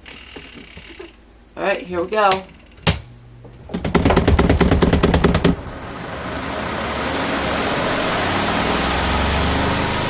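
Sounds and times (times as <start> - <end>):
spin tub motor whirring: 4.0 - 10.0.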